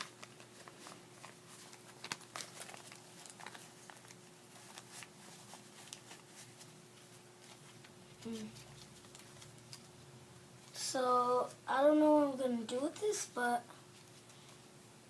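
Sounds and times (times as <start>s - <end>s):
light clicks and crinkles: 0.0s - 10.0s
paper bills rustling: 0.0s - 10.0s.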